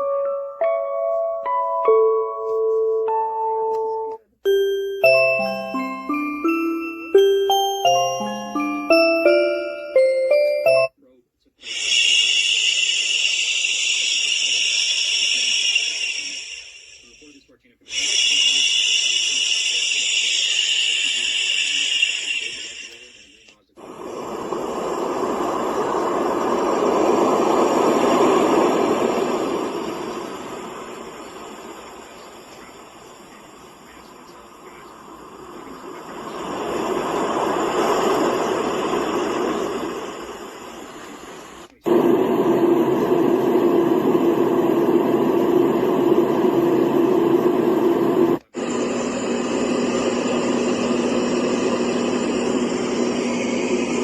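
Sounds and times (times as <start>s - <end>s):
bright high hiss: 4.5s - 10.9s, 11.6s - 48.6s
deep steady noise: 18.3s - 54.0s
low hum: 22.5s - 54.0s
steady rushing noise: 23.8s - 48.9s.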